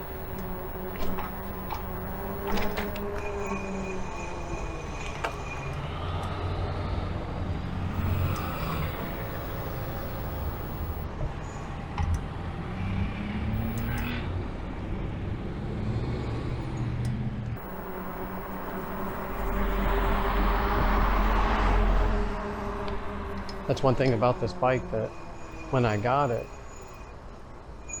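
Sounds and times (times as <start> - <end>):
wind and road noise rumble: 5.1 - 24.7
cars passing: 5.7 - 11.1, 11.8 - 26.1.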